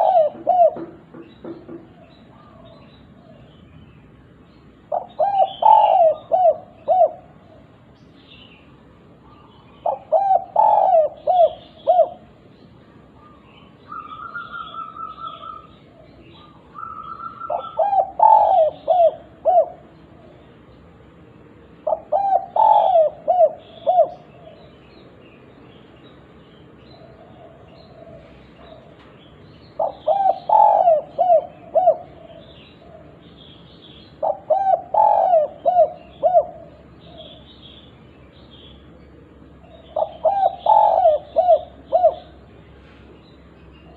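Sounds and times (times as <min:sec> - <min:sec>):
dove cooing: 0:00.0 - 0:03.6, 0:04.8 - 0:07.9, 0:09.2 - 0:20.7, 0:21.7 - 0:25.0, 0:26.8 - 0:37.9, 0:38.8 - 0:42.8.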